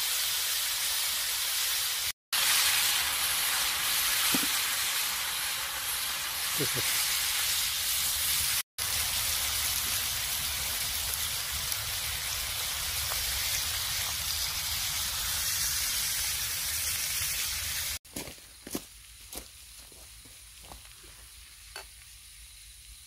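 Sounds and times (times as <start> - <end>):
meat sizzling on a griddle: 0.0 - 18.0.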